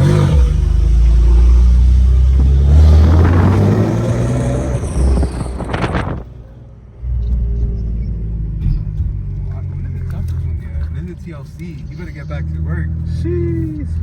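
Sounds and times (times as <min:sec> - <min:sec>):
car engine with deep exhaust rumble: 0:00.0 - 0:14.0.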